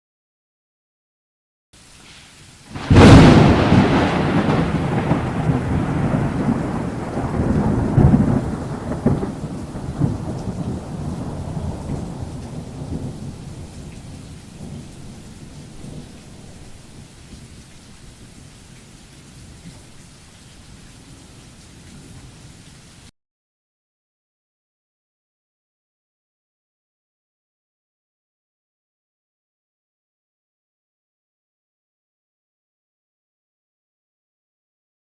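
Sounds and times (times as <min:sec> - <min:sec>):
rain hissing: 0:01.8 - 0:23.1
thunder crack and rumble: 0:02.8 - 0:17.4.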